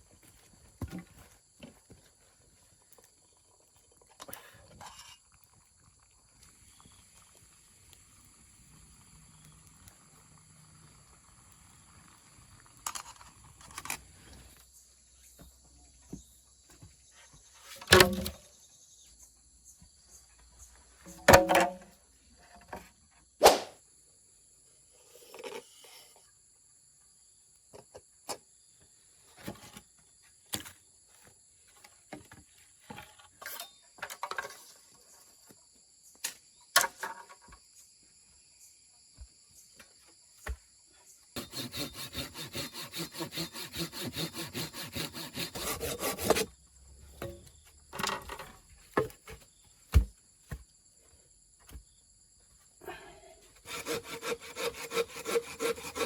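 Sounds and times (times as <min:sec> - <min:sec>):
hand saw sawing wood: 0:41.4 - 0:46.6, 0:53.6 - 0:56.0
knocks of wood being handled: 0:47.2 - 0:50.7.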